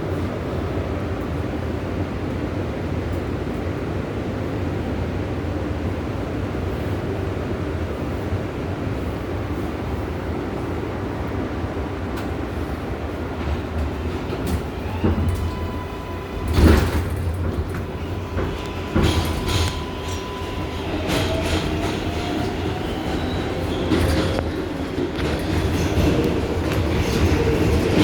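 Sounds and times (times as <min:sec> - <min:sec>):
subway car rumble: 0:00.0 - 0:28.0
wheels knocking over rail joints: 0:13.4 - 0:28.0.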